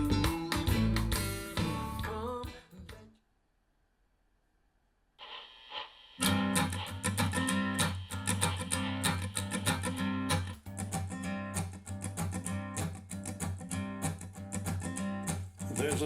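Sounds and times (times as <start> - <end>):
bass line: 0.0 - 2.4
strummed acoustic guitar: 0.0 - 2.7, 6.2 - 16.0.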